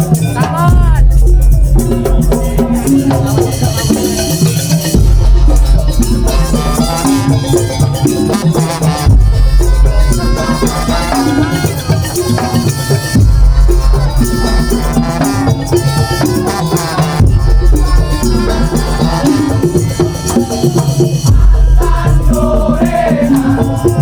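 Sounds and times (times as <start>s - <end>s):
heavy deep bass: 0.0s - 4.2s, 4.9s - 11.2s, 13.2s - 15.7s, 21.3s - 24.0s
percussion ensemble music: 0.0s - 24.0s
rattling percussion: 0.0s - 24.0s.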